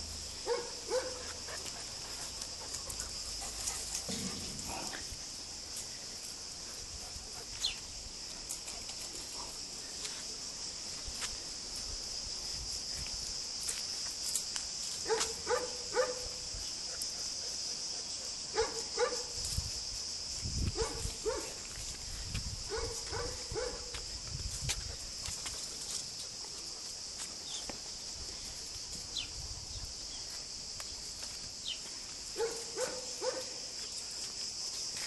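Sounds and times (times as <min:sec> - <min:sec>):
steady high hiss: 0:00.0 - 0:15.1.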